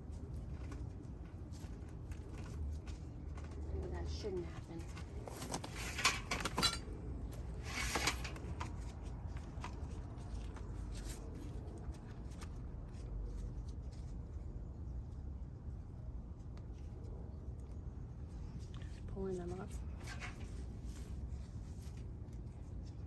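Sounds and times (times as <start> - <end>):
small crackles of plants: 0.0 - 5.9.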